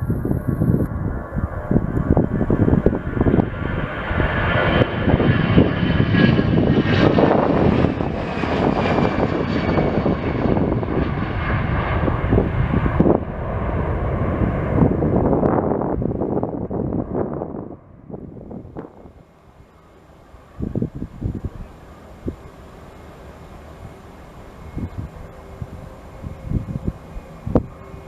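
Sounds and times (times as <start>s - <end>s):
wind on microphone: 0.0s - 19.3s, 20.4s - 22.5s, 23.7s - 28.0s
jet airliner engines passing: 0.0s - 28.0s.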